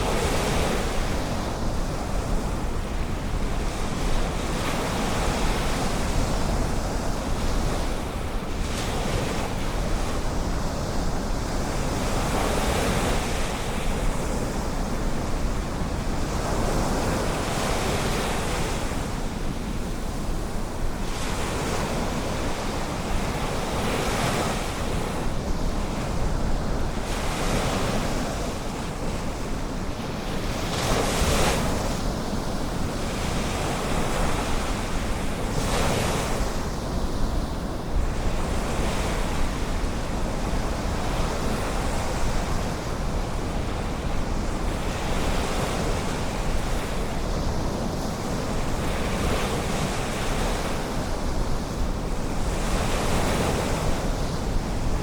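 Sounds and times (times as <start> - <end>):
ocean surf washing onto beach: 0.0 - 55.0
wind rumble on microphone: 0.0 - 55.0.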